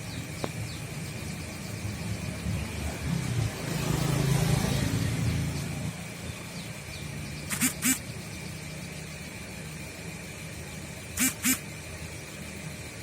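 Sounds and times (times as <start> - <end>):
short pitched calls: 7.4 - 8.4, 11.1 - 11.7.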